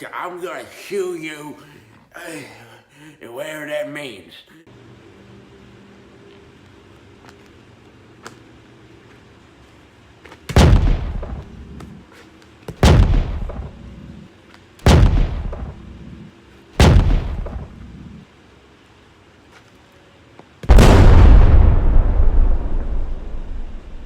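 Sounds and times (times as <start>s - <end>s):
heavy sledgehammer blows: 12.8s - 13.8s, 14.9s - 16.0s, 16.8s - 18.1s.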